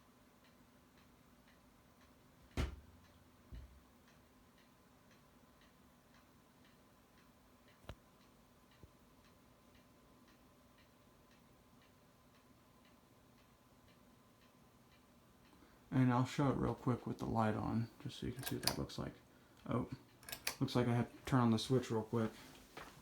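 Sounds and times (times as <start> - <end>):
faint steady ticking: 0.0 - 23.0
sharp knock: 2.6 - 2.8
light click: 18.4 - 18.8, 20.2 - 20.6.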